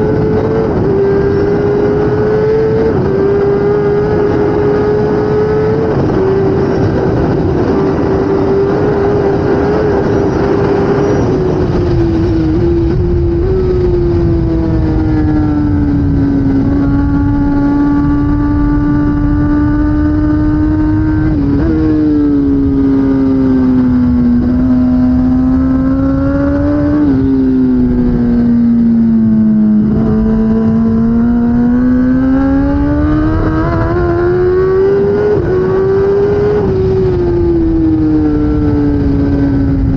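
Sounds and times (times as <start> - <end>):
motorcycle engine revving with gear changes: 0.0 - 39.9.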